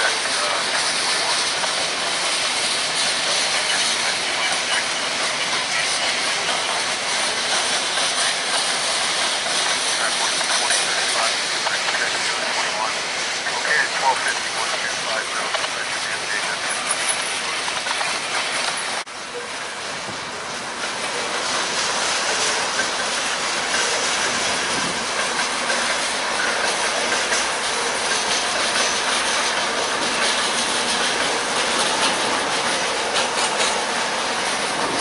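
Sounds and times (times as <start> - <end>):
train wheels clicking over rail joints: 0.0 - 12.1, 15.4 - 35.0
train rumble and hiss: 0.0 - 35.0.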